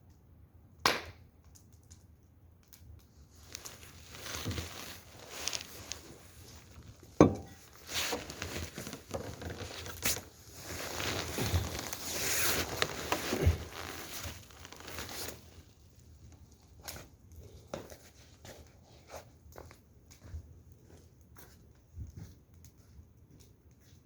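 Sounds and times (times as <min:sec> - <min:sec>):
plastic crinkling and rustling: 0:03.0 - 0:22.3.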